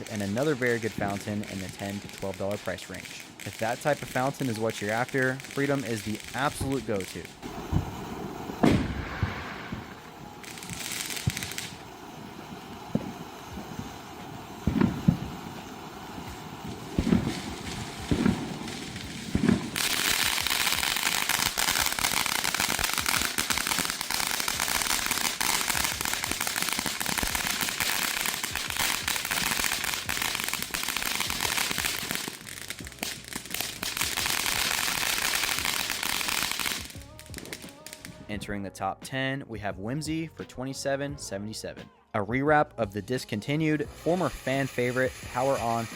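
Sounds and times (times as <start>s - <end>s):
fireworks crackling: 0.0s - 38.3s, 43.8s - 45.9s
dull low firework pops: 5.8s - 38.2s.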